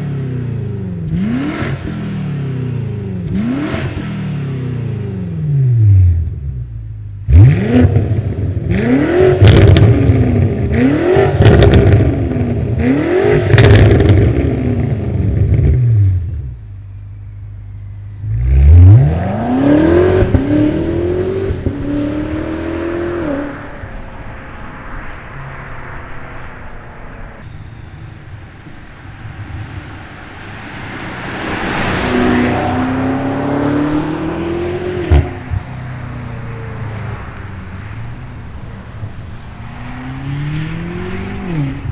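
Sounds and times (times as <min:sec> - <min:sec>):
car engine accelerating hard: 0:07.3 - 0:16.1, 0:18.2 - 0:41.9
car passing by: 0:18.3 - 0:41.9.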